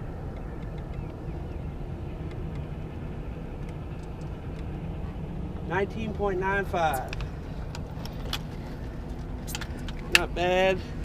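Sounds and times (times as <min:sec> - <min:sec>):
boat motor running at low speed: 0:00.0 - 0:11.0.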